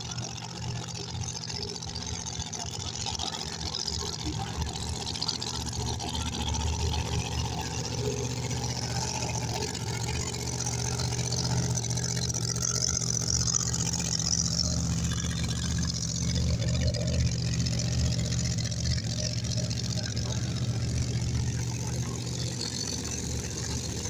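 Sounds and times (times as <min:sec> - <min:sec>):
racing car engine idling: 0:00.0 - 0:24.0.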